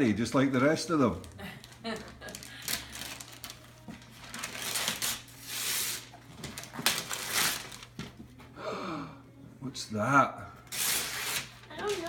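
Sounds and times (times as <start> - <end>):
wrapping paper tearing and crinkling: 1.1 - 8.1, 10.6 - 12.0.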